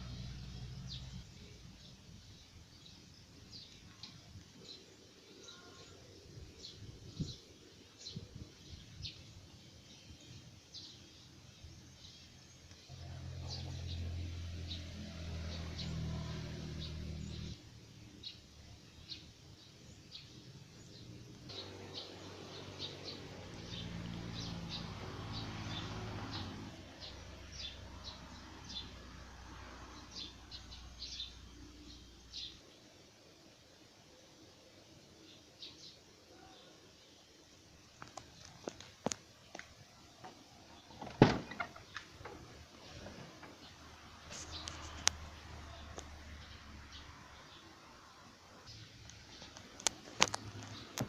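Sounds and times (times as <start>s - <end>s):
outdoor background noise: 0.0s - 51.0s
birds chirping: 35.2s - 47.8s, 48.4s - 51.0s.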